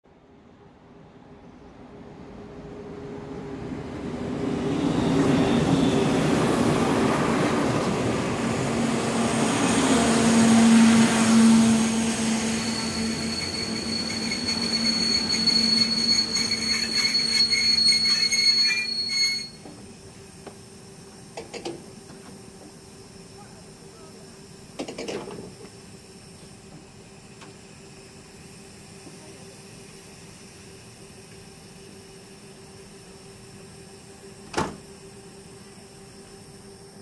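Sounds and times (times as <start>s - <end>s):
train rumble: 0.6s - 32.4s
high wheel squeal: 10.3s - 19.8s.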